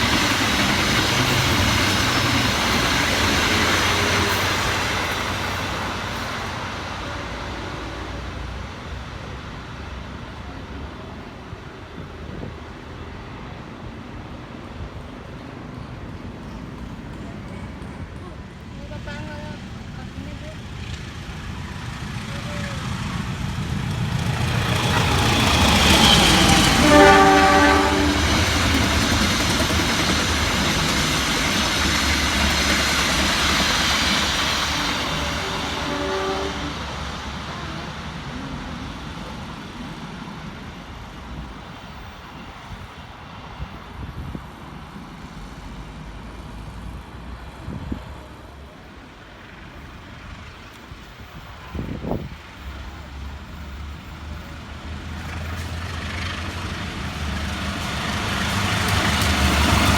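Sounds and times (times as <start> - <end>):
train passing rumble: 0.0 - 59.9
train horn blasts: 25.8 - 28.7, 34.7 - 37.2.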